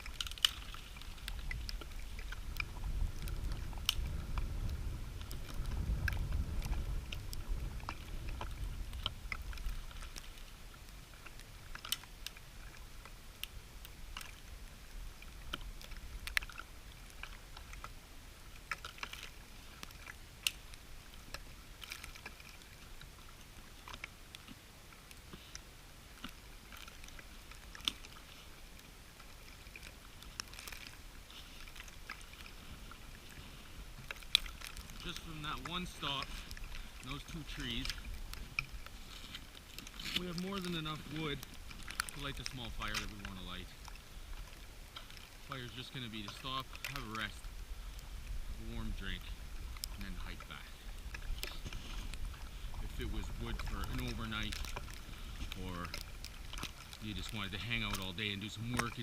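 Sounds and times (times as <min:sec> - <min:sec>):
wind rumble on microphone: 0:00.0 - 0:11.8, 0:31.0 - 0:59.0.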